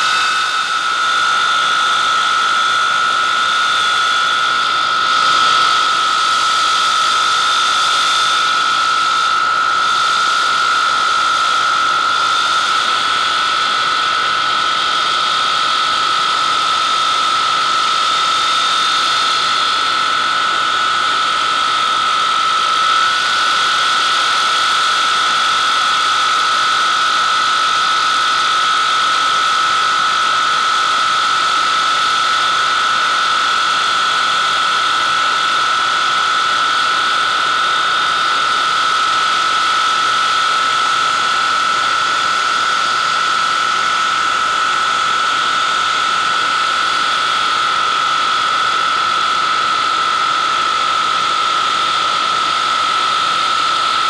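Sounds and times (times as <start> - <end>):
jet engines whining: 0.0 - 24.4.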